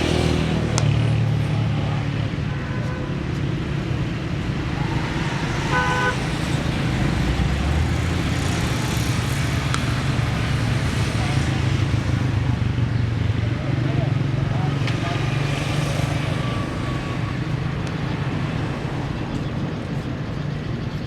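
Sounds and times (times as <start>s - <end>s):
low rumble of road traffic: 0.0s - 21.0s
short horn toot: 5.6s - 6.2s.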